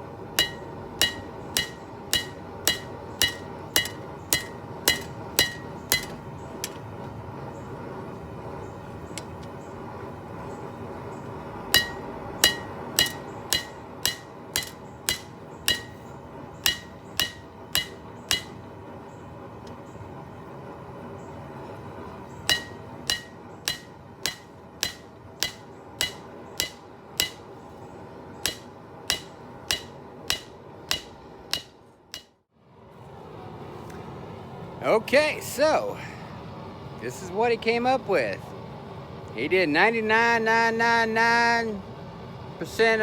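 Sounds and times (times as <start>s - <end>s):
steady background hum: 0.0s - 43.0s
hammer ringing on anvil: 0.4s - 6.8s, 11.8s - 18.7s, 22.5s - 27.6s, 28.4s - 32.4s.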